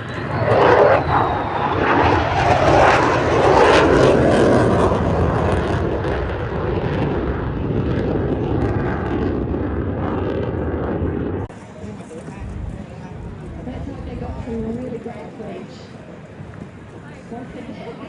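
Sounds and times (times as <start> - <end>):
aircraft flying past: 0.0 - 11.5.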